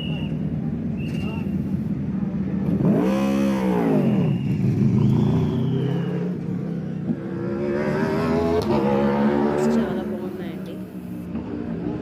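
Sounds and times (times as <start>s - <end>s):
race car engine climbing: 0.2s - 12.0s
race car engine passing: 2.7s - 12.0s.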